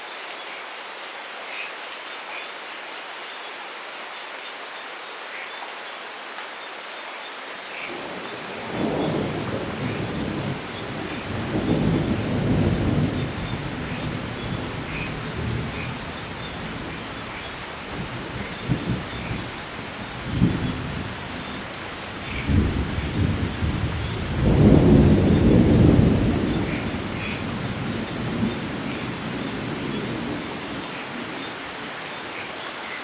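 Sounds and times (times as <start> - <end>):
heavy rain: 0.0 - 33.0
thunder rumbling: 8.0 - 31.3.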